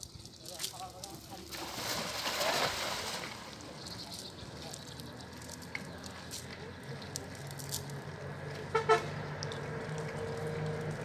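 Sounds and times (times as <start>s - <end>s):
low engine hum: 2.9s - 11.0s.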